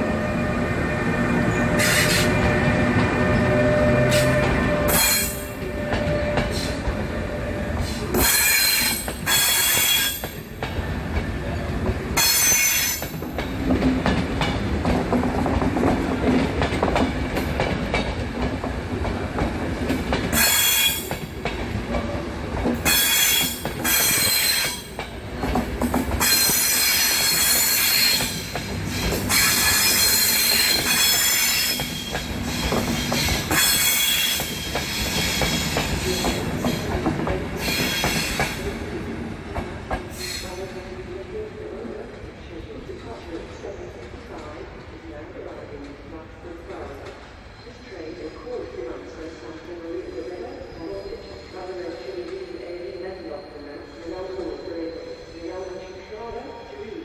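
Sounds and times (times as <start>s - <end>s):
train rumble: 0.0s - 57.0s
train wheels squealing: 1.5s - 10.4s, 11.6s - 13.1s, 20.3s - 21.2s, 22.8s - 24.9s, 26.2s - 36.9s, 37.6s - 38.6s, 40.1s - 40.7s, 50.2s - 56.9s.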